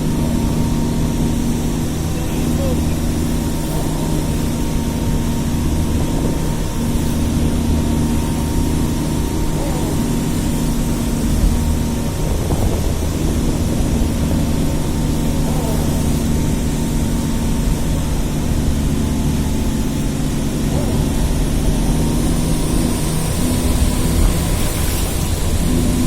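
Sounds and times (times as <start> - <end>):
engine hum: 0.0 - 26.0
low rumble: 0.0 - 26.0.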